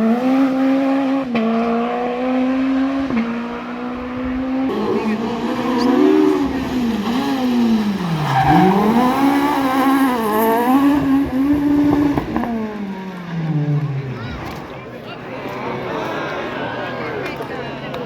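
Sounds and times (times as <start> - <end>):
rally car engine revving: 0.0 - 15.6.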